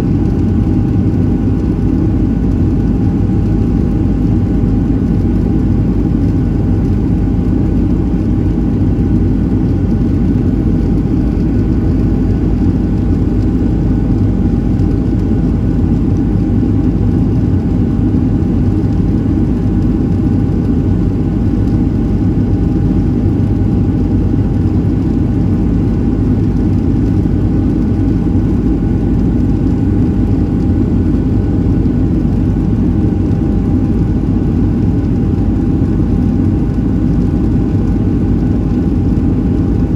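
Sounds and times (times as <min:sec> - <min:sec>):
aircraft cabin engine drone: 0:00.0 - 0:39.9
faint steady whine: 0:00.0 - 0:39.9.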